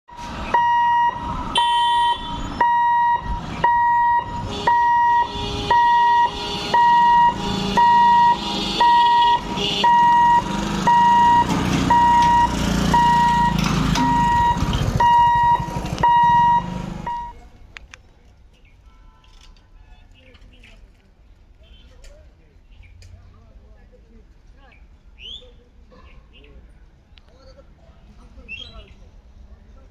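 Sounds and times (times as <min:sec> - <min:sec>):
level-crossing alarm beeping: 0:00.5 - 0:17.4.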